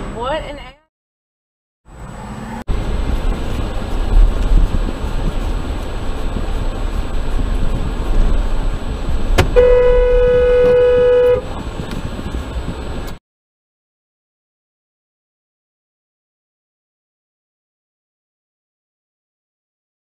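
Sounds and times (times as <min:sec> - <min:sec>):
car driving low rumble: 0:01.9 - 0:13.2
car horn long blast: 0:09.5 - 0:11.5.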